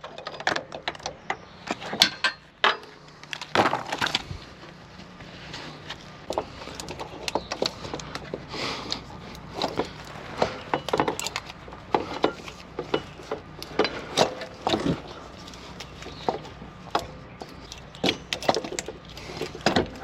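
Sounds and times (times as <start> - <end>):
hand tools clicking on metal: 6.3 - 20.0.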